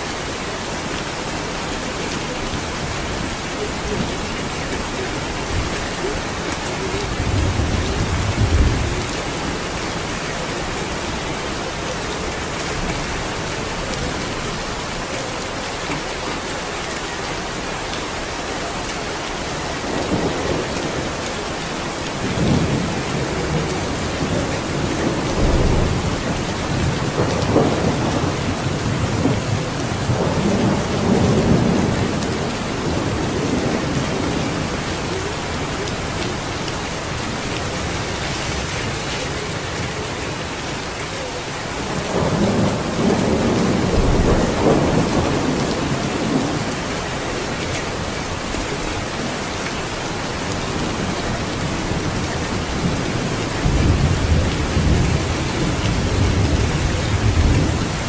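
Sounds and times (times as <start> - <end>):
heavy rain hissing: 0.0 - 58.0
thunder rumbling: 1.8 - 10.9, 22.2 - 47.2.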